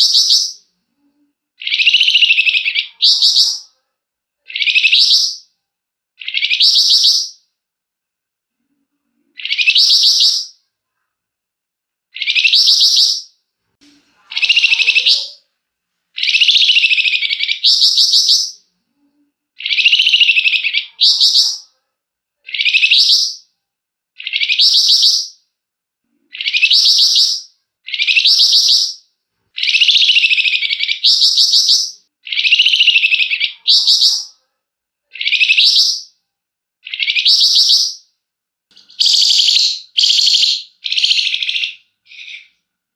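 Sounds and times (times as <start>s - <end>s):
songbird rattling trill: 38.8s - 42.4s.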